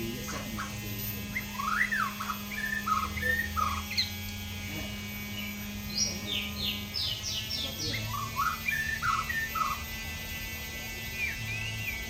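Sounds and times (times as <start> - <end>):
electrical hum: 0.0 - 12.0
bird singing whistled notes: 0.2 - 4.4, 5.3 - 9.9, 11.1 - 12.0.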